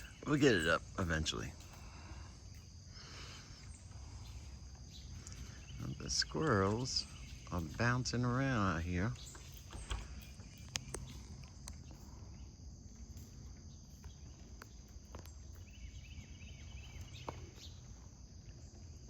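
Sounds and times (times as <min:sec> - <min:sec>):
chirps: 0:00.0 - 0:19.0
high-pitched insect drone: 0:00.0 - 0:19.0
sharp clicks: 0:09.3 - 0:11.8.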